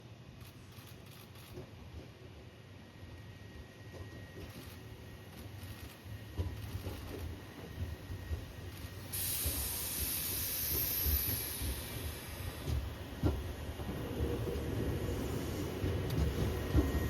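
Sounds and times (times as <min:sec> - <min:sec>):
train rumbling past: 0:00.2 - 0:17.0
sharp high hiss: 0:08.7 - 0:13.0.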